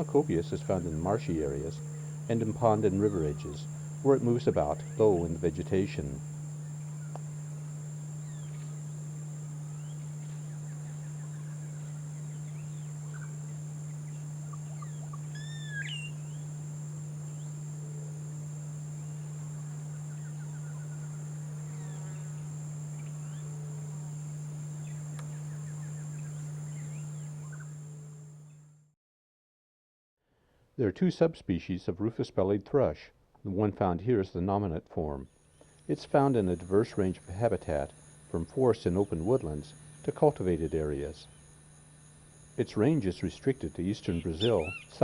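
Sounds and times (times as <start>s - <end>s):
high insect drone: 0.0s - 28.8s, 35.4s - 45.0s
steady low hum: 0.0s - 28.8s, 35.0s - 45.0s
short bird calls: 6.1s - 18.2s, 44.1s - 45.0s
rising whistled bird call: 9.8s - 16.5s, 44.1s - 44.9s.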